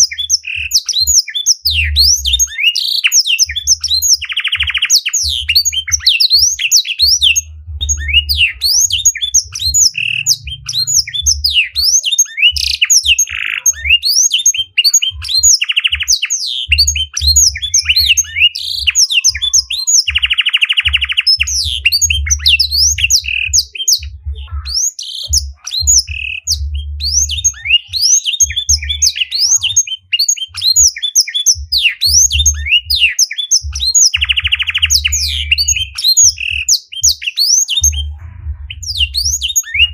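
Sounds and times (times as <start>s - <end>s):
buzzy bird trill: 0.0s - 39.9s
songbirds singing: 0.0s - 39.9s
low rumble: 7.4s - 11.8s, 26.1s - 27.6s, 37.8s - 39.9s.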